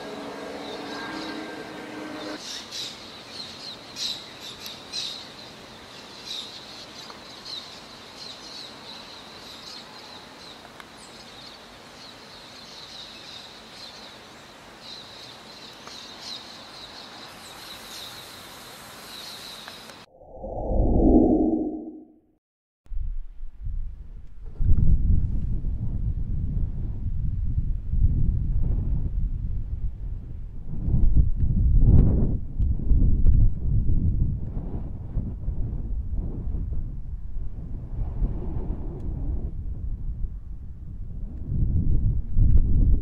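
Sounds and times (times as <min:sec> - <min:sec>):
outdoor background hiss: 0:02.4 - 0:20.1
loud low whoosh: 0:20.1 - 0:22.1.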